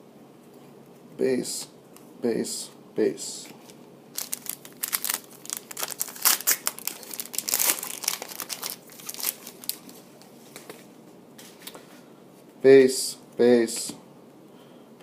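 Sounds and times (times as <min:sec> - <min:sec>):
plastic wrapper crinkling and tearing: 0:03.6 - 0:10.2.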